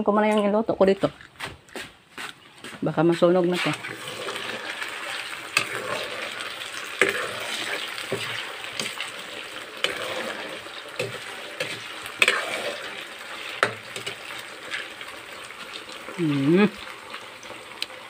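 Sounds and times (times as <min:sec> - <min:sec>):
food sizzling in oil: 0:03.0 - 0:18.0
metal ladle scraping wok: 0:03.4 - 0:15.4.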